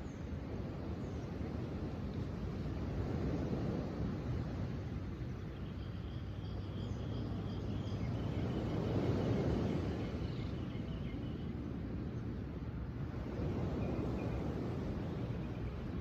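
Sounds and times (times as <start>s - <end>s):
wind: 0.0s - 16.0s
faint bird chirping: 5.3s - 11.6s
ocean surf: 7.2s - 16.0s.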